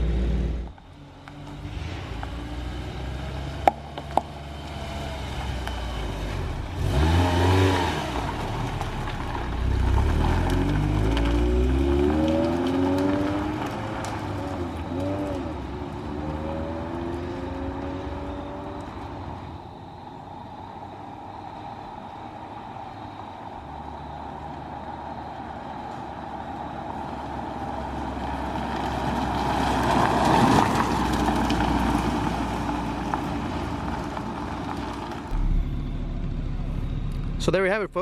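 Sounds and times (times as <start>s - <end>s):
four-cylinder engine running: 32.6s - 38.0s.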